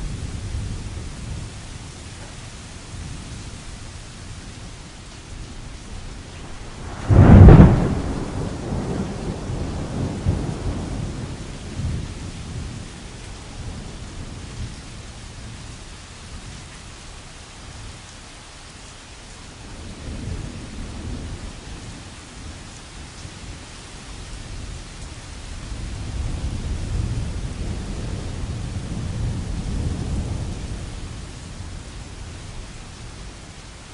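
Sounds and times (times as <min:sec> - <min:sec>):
rain pattering on a tent: 0:00.0 - 0:33.9
thunder rolling: 0:06.4 - 0:12.0.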